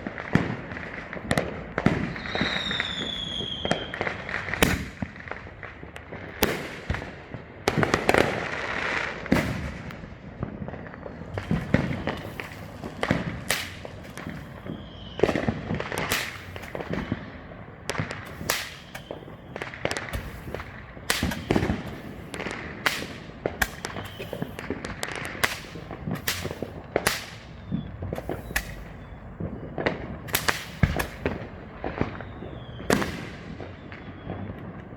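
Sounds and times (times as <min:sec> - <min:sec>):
fireworks bangs and pops: 0:00.0 - 0:34.9
fireworks crackling: 0:00.0 - 0:34.9.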